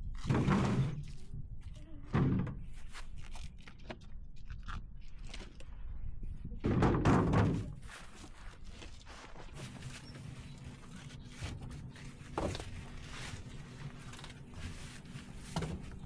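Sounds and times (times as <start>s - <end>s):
logs thunking onto woodpile: 2.1s - 2.7s, 6.6s - 8.0s, 11.4s - 14.6s, 15.2s - 16.0s
light clatter of wood: 6.6s - 16.0s.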